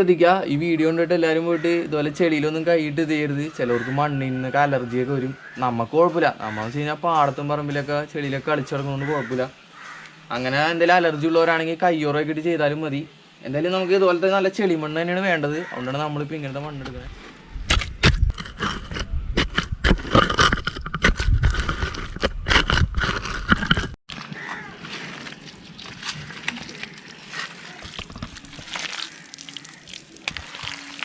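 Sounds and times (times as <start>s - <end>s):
wet mud squelching by hand: 24.5s - 31.0s.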